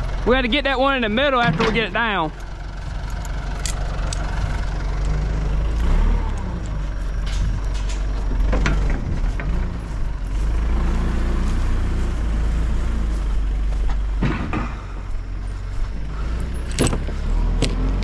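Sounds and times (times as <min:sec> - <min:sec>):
vehicle engine running: 0:00.0 - 0:18.0
sharp metal clanks: 0:06.4 - 0:09.0.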